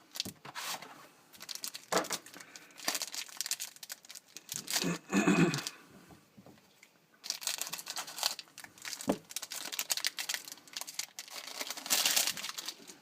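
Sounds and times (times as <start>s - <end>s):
card packaging torn and crinkled: 1.4s - 5.0s, 7.2s - 13.0s.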